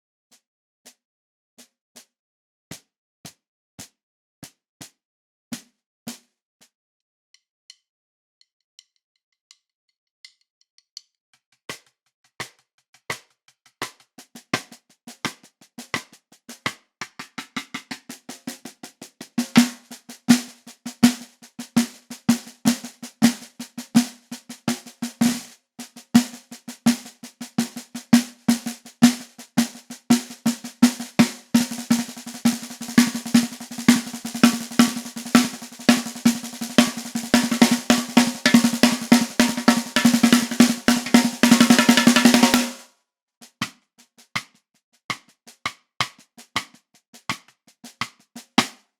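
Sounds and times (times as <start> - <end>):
snare drum strokes and roll: 13.8 - 42.8, 45.1 - 48.8.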